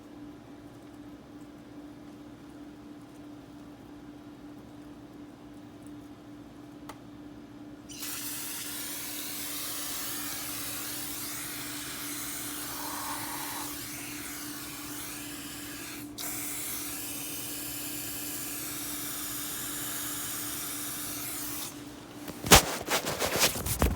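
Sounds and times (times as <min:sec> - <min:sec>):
aerosol spray hissing: 0:12.5 - 0:13.8.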